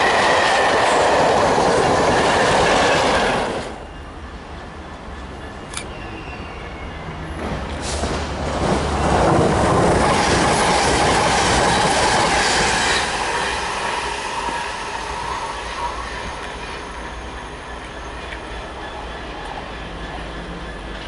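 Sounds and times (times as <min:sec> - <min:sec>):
train wheels clattering over rails: 0:07.3 - 0:21.0.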